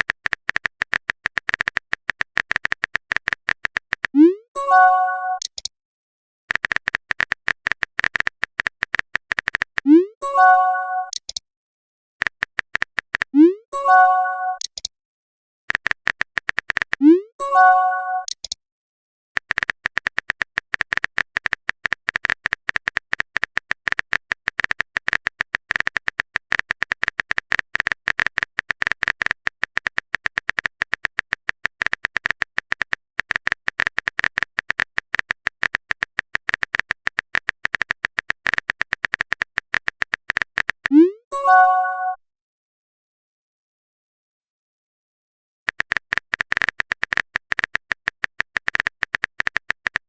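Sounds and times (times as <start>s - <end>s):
rapid keyboard typing: 0.0s - 4.4s, 6.5s - 10.0s, 12.2s - 13.5s, 15.7s - 17.2s, 19.4s - 41.0s, 45.7s - 50.0s
message alert chime: 4.6s - 5.4s, 10.2s - 11.1s, 13.8s - 14.6s, 17.4s - 18.3s, 40.9s - 42.2s.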